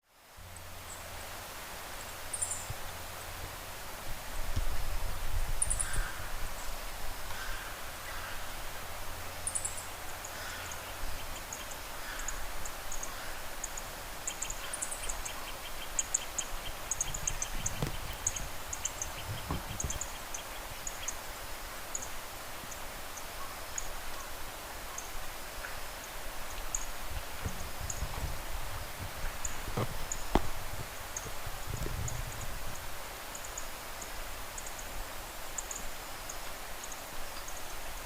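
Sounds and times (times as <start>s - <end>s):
mid-pitched bird calls: 9.5s - 21.2s.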